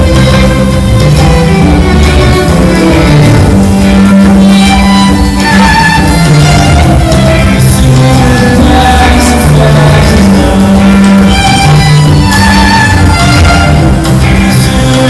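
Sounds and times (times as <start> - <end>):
sustained low bass line: 0.0 - 15.0
violin: 0.0 - 15.0.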